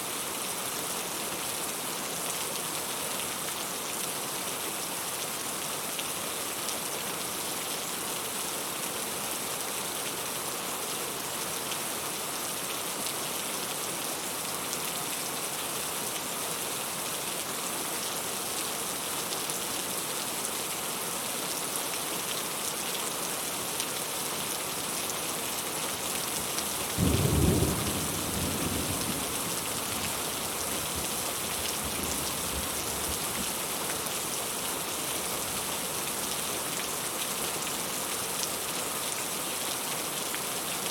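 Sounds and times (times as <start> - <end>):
steady rain falling: 0.0 - 40.9
thunder clap rumbling: 27.0 - 29.5.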